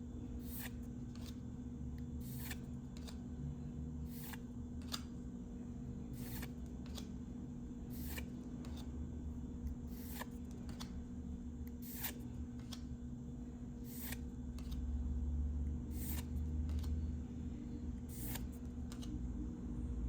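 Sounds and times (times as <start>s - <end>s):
steady low hum: 0.0s - 20.0s
cards being flipped: 0.5s - 1.4s, 2.2s - 3.2s, 4.1s - 5.1s, 6.2s - 7.1s, 8.0s - 8.9s, 9.9s - 11.0s, 11.8s - 12.9s, 13.9s - 14.9s, 16.0s - 17.0s, 18.1s - 19.2s.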